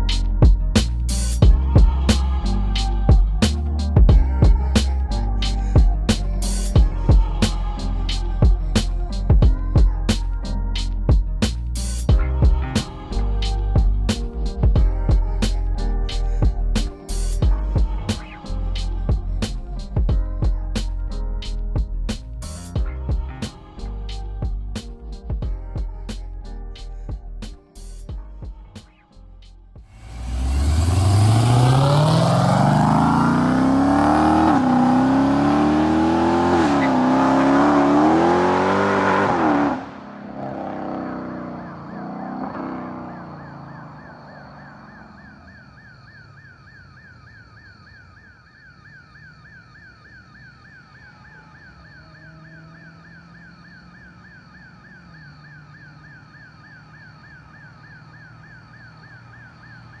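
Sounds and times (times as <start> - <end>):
car engine at full throttle: 29.9 - 45.2, 52.0 - 56.2
electronic alarm yelping: 41.5 - 60.0.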